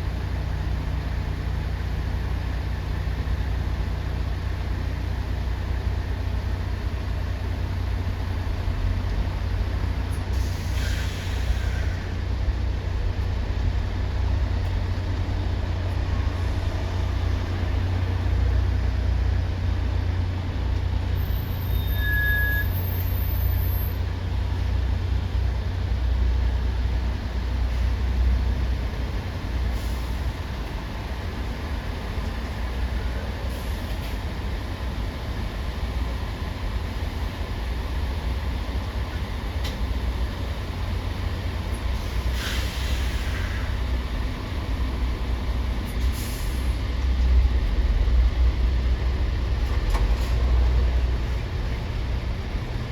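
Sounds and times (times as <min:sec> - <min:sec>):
heavy traffic rumble: 0:00.0 - 0:52.9
short high squeal: 0:21.2 - 0:24.0
brief hiss: 0:42.0 - 0:43.7.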